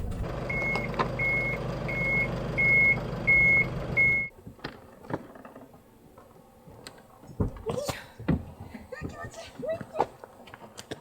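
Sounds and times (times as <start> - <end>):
engine running: 0.0 - 4.3
reversing warning beeps: 0.5 - 4.3.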